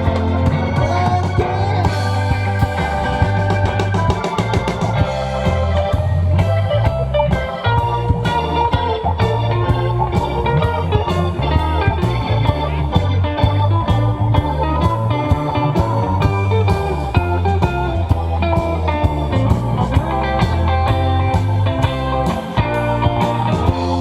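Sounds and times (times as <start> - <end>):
bass guitar: 0.0 - 24.0
electric guitar lines: 0.0 - 24.0
steady drum beat: 0.0 - 24.0.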